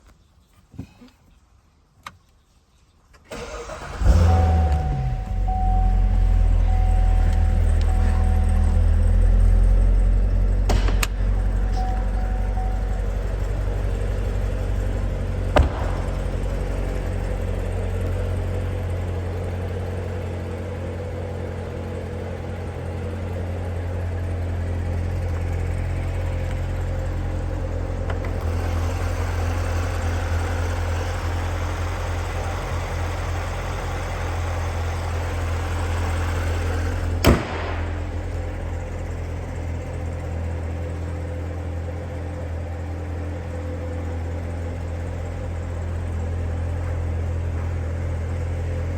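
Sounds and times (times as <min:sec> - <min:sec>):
car engine idling: 0:03.3 - 0:48.9
sharp knock: 0:10.7 - 0:11.4, 0:15.6 - 0:16.7.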